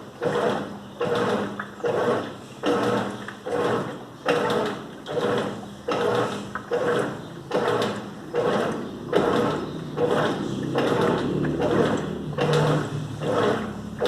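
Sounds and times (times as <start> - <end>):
washing machine agitating in water: 0.0 - 14.0.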